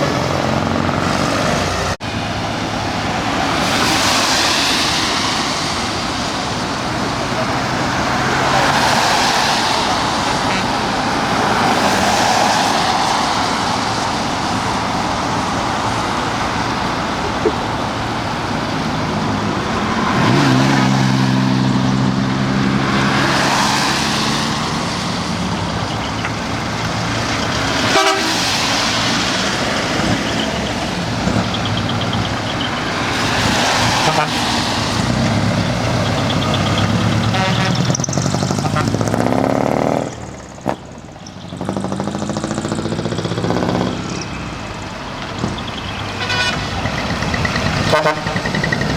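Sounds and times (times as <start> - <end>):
trucks driving past: 0.0 - 48.9
truck horn: 10.2 - 11.2, 27.6 - 28.8, 33.8 - 35.2, 35.8 - 40.0, 46.0 - 48.9.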